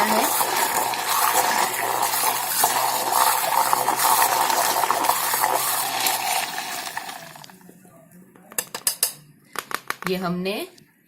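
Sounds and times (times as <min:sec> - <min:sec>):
liquid churning: 0:00.0 - 0:07.6.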